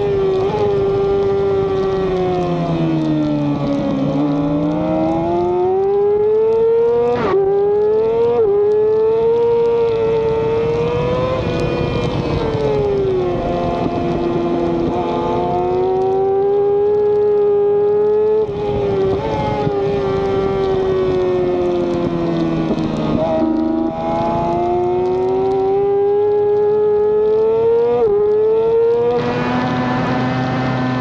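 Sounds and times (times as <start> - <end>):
motorcycle engine at high revs: 0.0 - 31.0
wind rush: 9.8 - 16.0, 18.4 - 25.8.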